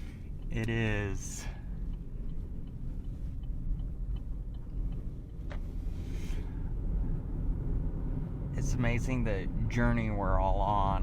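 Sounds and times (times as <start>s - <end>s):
faint regular ticking: 0.0s - 7.6s
car cabin road rumble: 0.0s - 11.0s.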